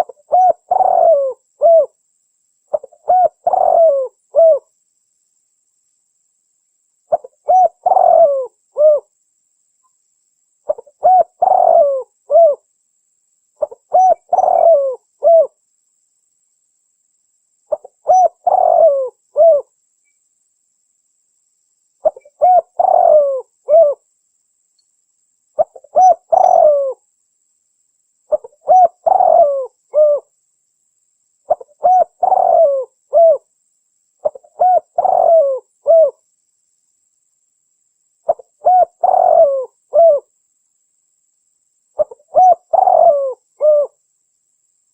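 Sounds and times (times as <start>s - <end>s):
dove cooing: 0.0s - 2.0s, 2.7s - 4.7s, 7.1s - 9.1s, 10.7s - 12.6s, 13.6s - 15.6s, 17.7s - 19.7s, 22.0s - 24.0s, 25.6s - 27.0s, 28.3s - 30.3s, 31.5s - 33.5s, 34.2s - 36.2s, 38.3s - 40.3s, 42.0s - 44.0s.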